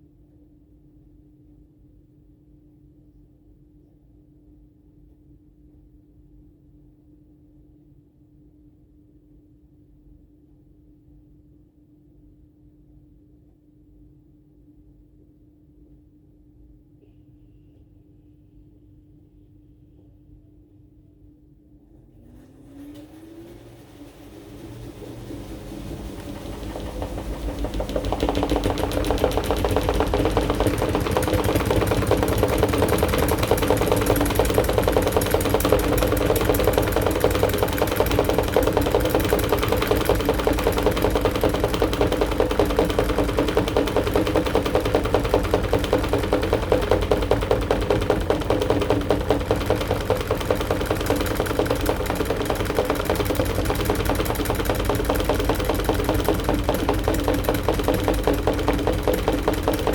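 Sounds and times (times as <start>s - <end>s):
washing machine motor hum: 21.8s - 59.9s
fast rattling vibration: 22.4s - 59.9s.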